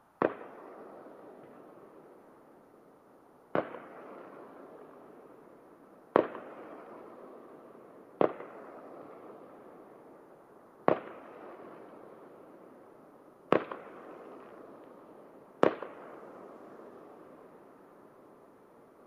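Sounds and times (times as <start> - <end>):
distant firework bangs with echo: 3.5 - 4.6, 6.1 - 7.0, 8.2 - 9.4, 10.8 - 11.9, 13.5 - 14.6, 15.6 - 17.0.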